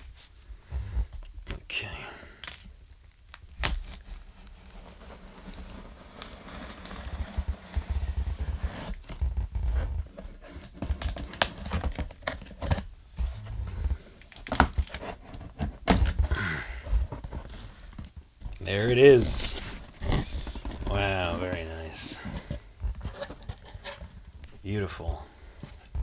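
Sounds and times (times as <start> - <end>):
packaging rustling and crinkling: 3.3 - 26.0
dull thumps: 18.4 - 26.0.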